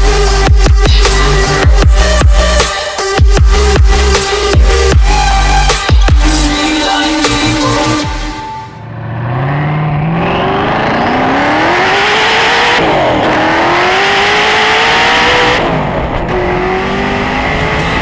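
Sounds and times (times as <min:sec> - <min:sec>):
car engine accelerating hard: 0:08.8 - 0:18.0.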